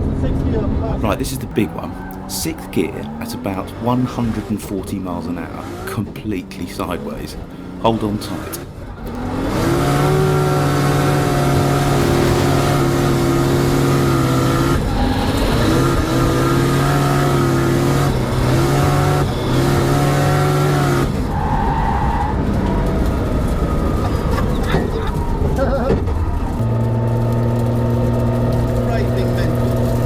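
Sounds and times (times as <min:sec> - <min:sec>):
car engine revving hard: 0:07.4 - 0:21.4.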